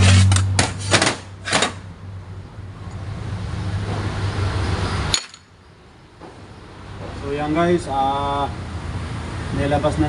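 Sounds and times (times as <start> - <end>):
metal parts knocking and clinking: 5.1 - 5.6.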